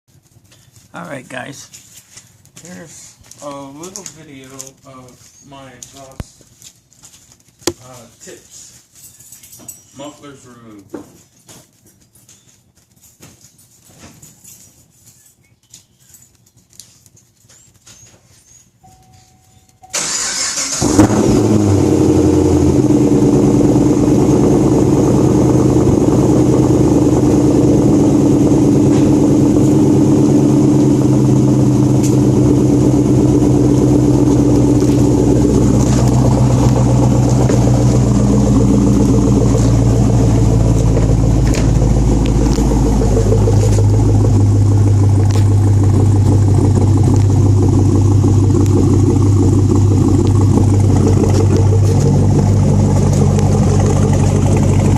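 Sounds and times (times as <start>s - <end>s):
car engine idling through open exhaust: 20.0s - 54.9s.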